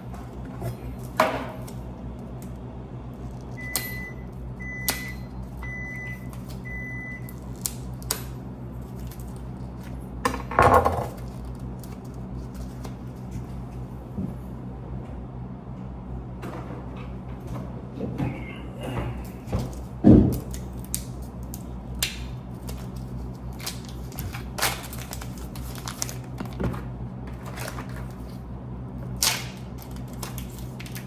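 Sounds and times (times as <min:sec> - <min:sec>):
microwave oven beeping: 0:00.0 - 0:08.7, 0:13.7 - 0:20.8
low steady hum: 0:00.0 - 0:31.0
clatter of dishes or door: 0:10.3 - 0:11.2.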